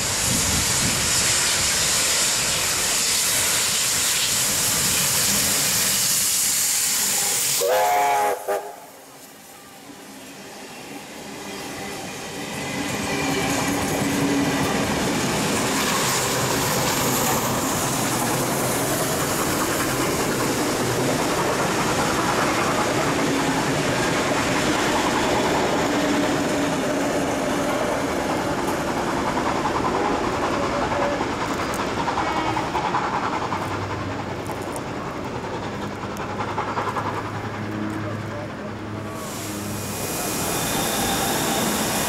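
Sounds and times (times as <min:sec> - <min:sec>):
train wheels rumbling and clattering: 0:10.8 - 0:42.0.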